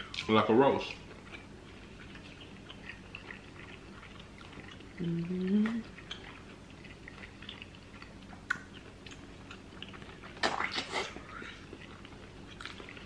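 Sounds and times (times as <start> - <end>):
person chewing: 0.0 - 13.0
wet mouth clicks: 8.4 - 9.6.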